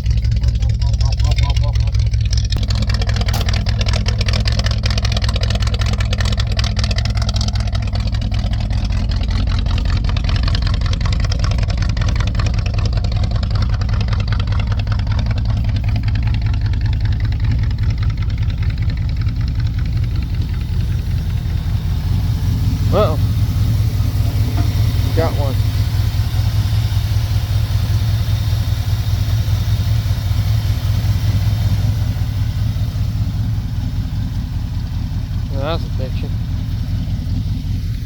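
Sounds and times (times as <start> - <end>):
truck engine idling: 0.0 - 38.0.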